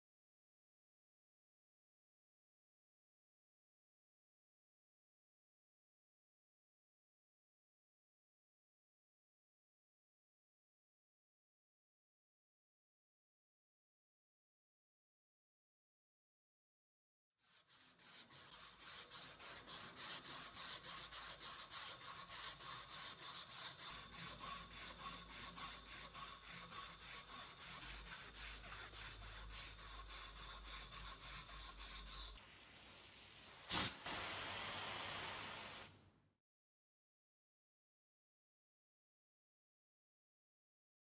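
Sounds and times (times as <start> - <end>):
hand rubbing strokes: 17.5 - 32.4
spraying hiss: 32.5 - 36.0.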